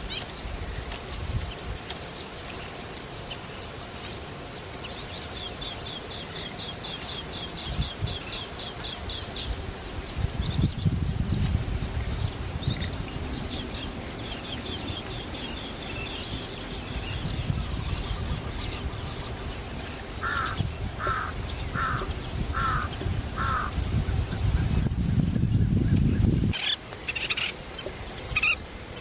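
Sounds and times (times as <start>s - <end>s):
harsh bird calls: 20.2s - 23.8s.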